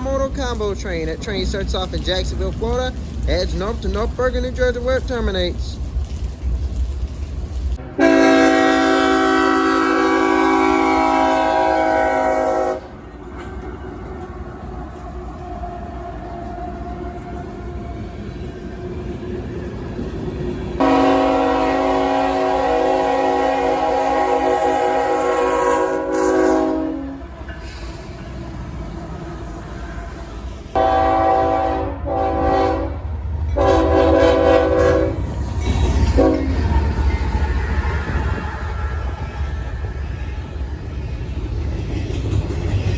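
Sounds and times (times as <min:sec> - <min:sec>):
train rumbling past: 0:00.0 - 0:42.9
locomotive air horn blast: 0:07.8 - 0:12.9, 0:20.8 - 0:27.3, 0:30.8 - 0:33.0, 0:33.6 - 0:35.2, 0:36.1 - 0:36.6.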